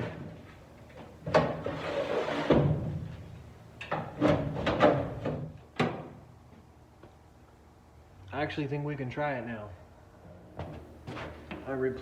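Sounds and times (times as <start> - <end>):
metal clunks and knocks: 3.8 - 6.2.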